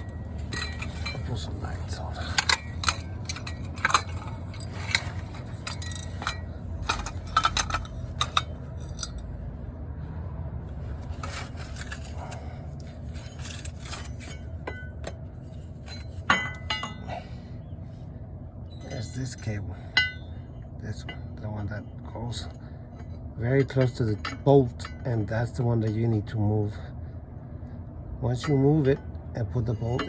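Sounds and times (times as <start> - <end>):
metal tools clinking and scraping: 0.0 - 9.2, 10.9 - 17.3, 18.7 - 20.4, 22.4 - 26.3, 28.4 - 30.0
steady low hum: 0.0 - 30.0.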